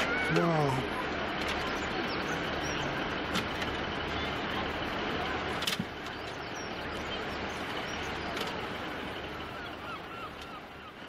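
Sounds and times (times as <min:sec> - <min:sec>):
diesel train engine rumble: 0:00.0 - 0:11.0
faint bird chirps: 0:00.9 - 0:03.0, 0:06.0 - 0:11.0.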